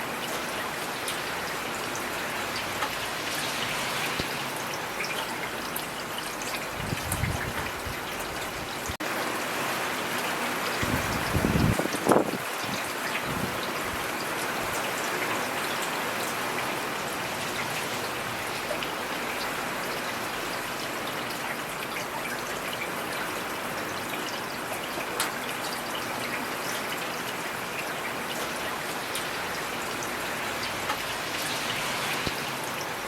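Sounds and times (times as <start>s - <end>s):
rain falling: 0.0s - 33.0s.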